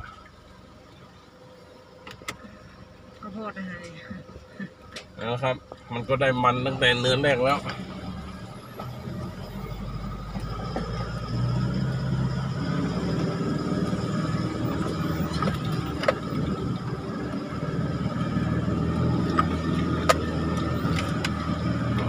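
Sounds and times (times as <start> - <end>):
vehicle engine under load: 0.0 - 22.0.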